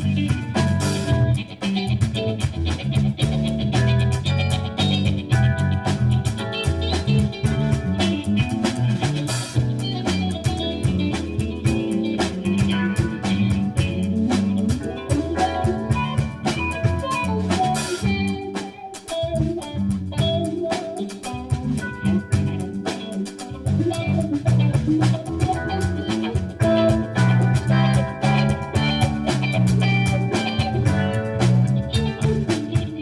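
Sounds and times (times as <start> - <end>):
drums beating: 0.0 - 33.0.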